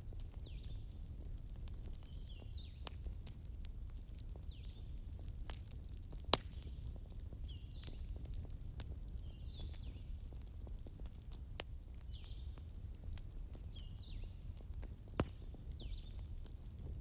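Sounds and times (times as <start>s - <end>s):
campfire crackling: 0.0s - 17.0s
sharp fire pops: 5.4s - 9.6s, 10.8s - 17.0s.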